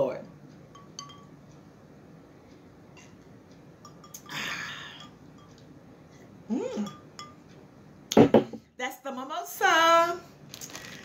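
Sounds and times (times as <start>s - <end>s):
person humming mm: 6.5s - 7.0s.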